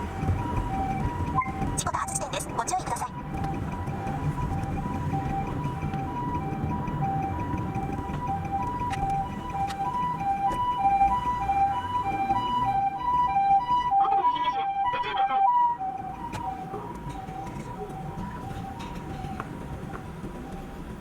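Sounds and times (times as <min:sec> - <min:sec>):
road noise: 0:00.0 - 0:21.0
two-tone ambulance siren: 0:00.0 - 0:21.0.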